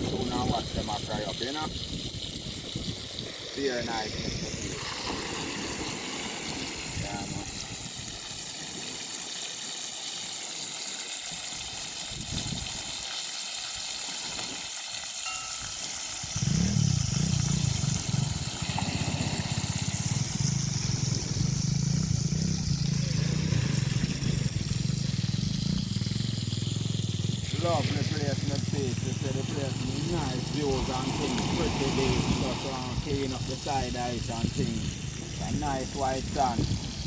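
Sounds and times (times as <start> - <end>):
meat sizzling in hot oil: 0.0 - 37.0.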